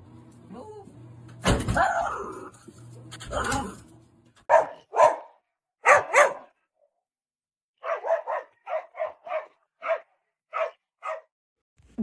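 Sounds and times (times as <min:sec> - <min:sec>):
dog barking: 0:04.4 - 0:06.6, 0:07.8 - 0:11.3.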